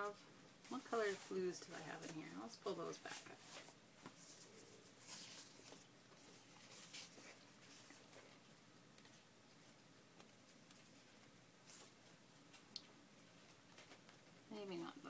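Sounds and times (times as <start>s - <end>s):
paper sheets rustling: 0.7s - 8.4s.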